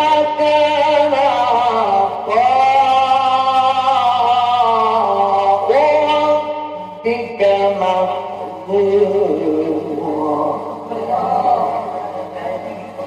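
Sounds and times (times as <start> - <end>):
man chanting recitation: 0.0 - 13.0.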